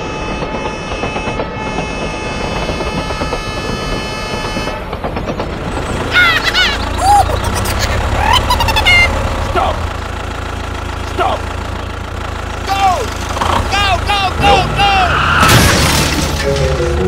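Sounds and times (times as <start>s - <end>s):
chirping glides: 5.9s - 8.9s.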